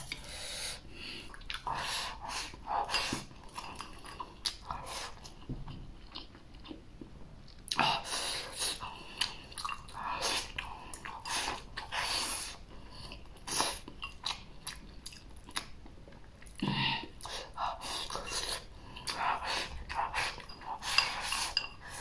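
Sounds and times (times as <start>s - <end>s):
chewing crunchy food: 2.9s - 7.9s, 8.7s - 11.9s, 12.6s - 21.7s.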